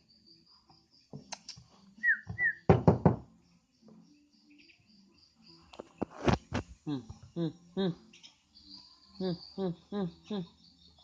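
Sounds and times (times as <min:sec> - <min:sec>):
bird downward chirps: 0:02.0 - 0:02.7
loud knocks: 0:02.7 - 0:03.2.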